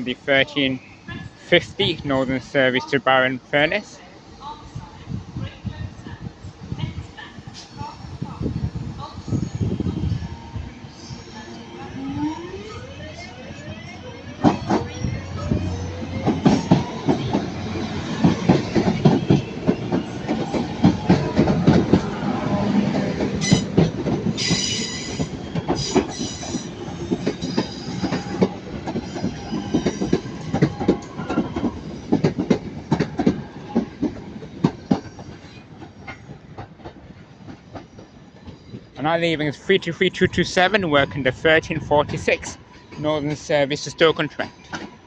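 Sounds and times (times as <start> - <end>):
train wheels clattering over rail joints: 15.6 - 39.0
high-pitched wheel squeals: 24.4 - 28.4.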